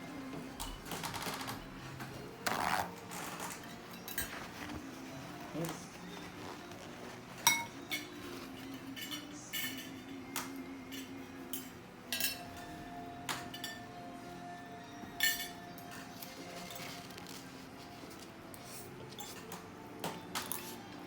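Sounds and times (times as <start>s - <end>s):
cutlery clinking on plate: 3.1s - 4.8s, 7.3s - 14.0s, 15.0s - 17.1s, 18.6s - 21.0s.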